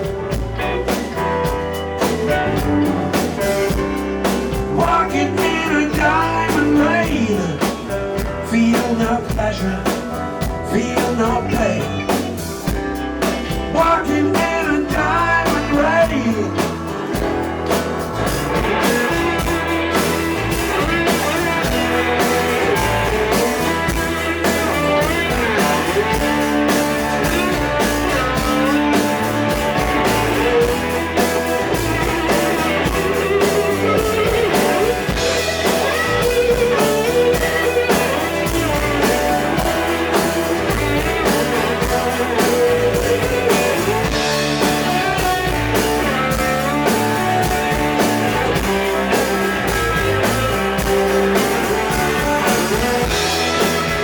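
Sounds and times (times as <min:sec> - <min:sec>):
blues-rock band playing: 0:00.0 - 0:54.0
lead guitar solo with bent notes: 0:16.8 - 0:54.0.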